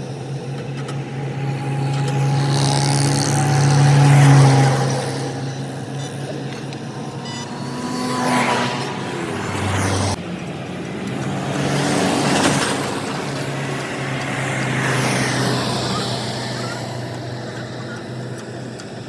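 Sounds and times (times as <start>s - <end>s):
steady engine hum: 0.0s - 19.0s
vehicles passing by: 0.0s - 19.0s.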